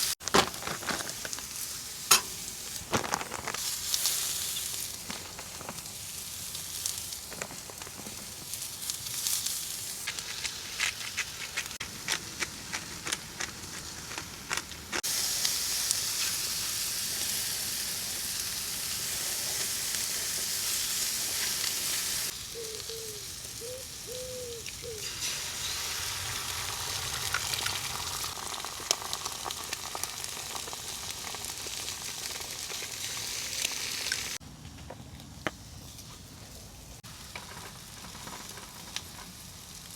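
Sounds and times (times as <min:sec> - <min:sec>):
food sizzling in a pan: 0:03.6 - 0:10.8, 0:15.0 - 0:24.2, 0:24.8 - 0:34.4.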